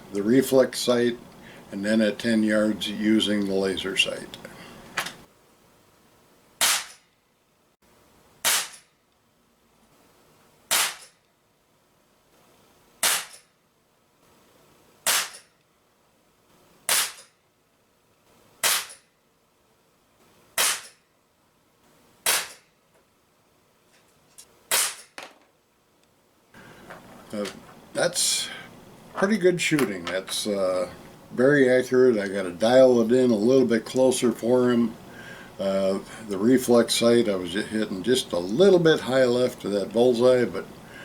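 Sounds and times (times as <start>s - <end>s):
pellet pistol shots: 6.6s - 7.0s, 8.4s - 8.9s, 10.7s - 11.2s, 13.0s - 13.4s, 15.1s - 15.5s, 16.9s - 17.3s, 18.6s - 19.0s, 20.6s - 21.0s, 22.2s - 22.7s, 24.7s - 25.2s.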